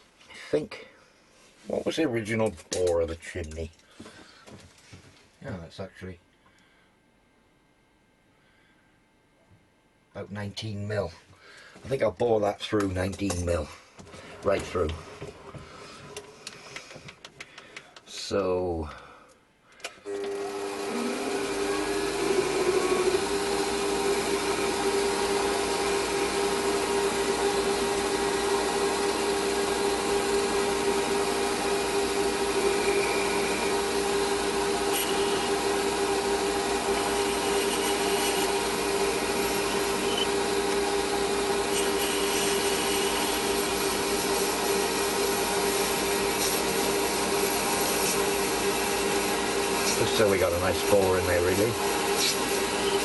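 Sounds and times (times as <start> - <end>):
lathe motor hum: 20.1 - 53.0
metal cutting scraping: 21.5 - 53.0.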